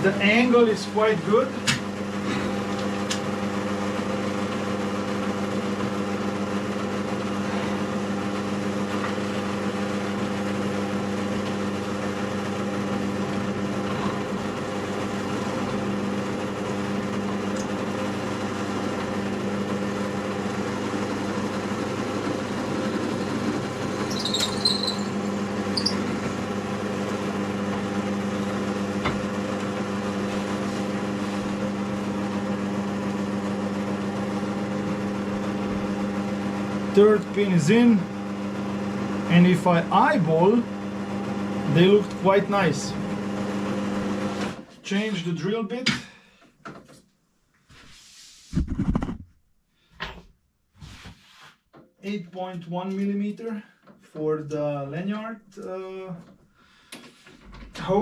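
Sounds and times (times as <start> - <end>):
drill press motor running: 0.0 - 44.6
high squeaks: 24.0 - 26.1.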